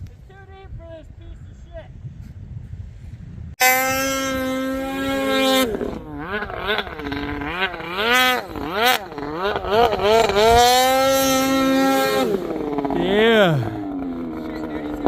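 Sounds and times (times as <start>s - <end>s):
snowmobile engine revving: 3.6s - 15.0s.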